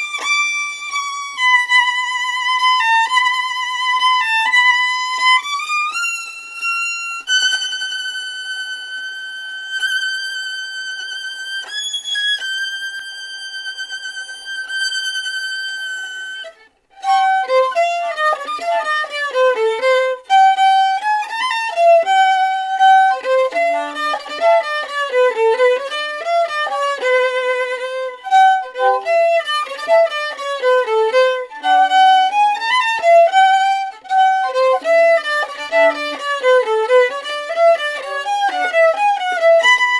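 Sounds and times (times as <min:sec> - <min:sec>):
solo violin playing: 0:00.0 - 0:39.9.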